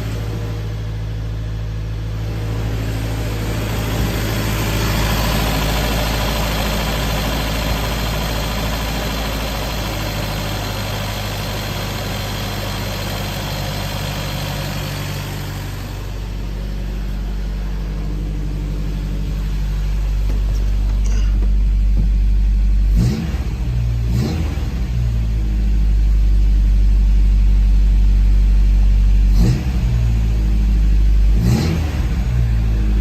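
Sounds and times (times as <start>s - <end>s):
car engine idling and revving: 0.0s - 33.0s.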